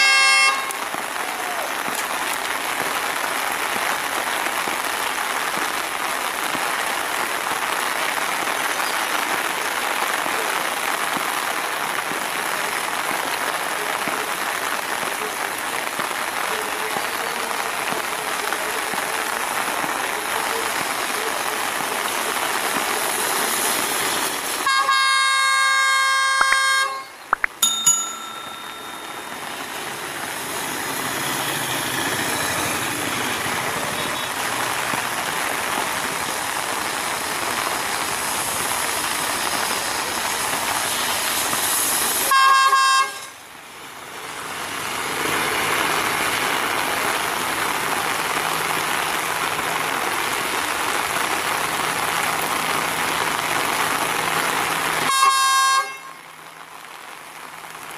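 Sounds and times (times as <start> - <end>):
train horn blasts: 0.0 - 0.9, 24.7 - 27.2, 42.3 - 43.4, 55.1 - 56.2
heavy rain hissing: 0.6 - 27.4, 28.1 - 57.9.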